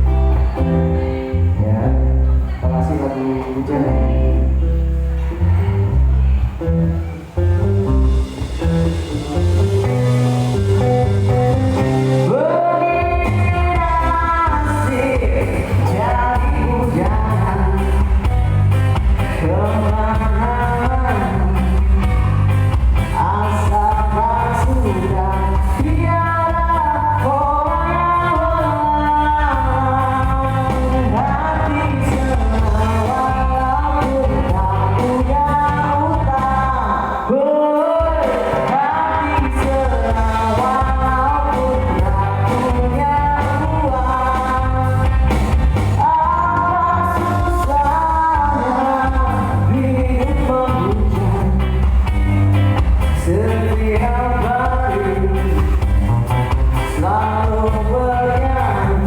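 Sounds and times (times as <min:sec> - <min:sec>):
lead singer singing: 0:00.0 - 0:07.4, 0:08.1 - 0:59.0
live band playing: 0:00.0 - 0:59.0
strong bass beat: 0:05.6 - 0:36.9.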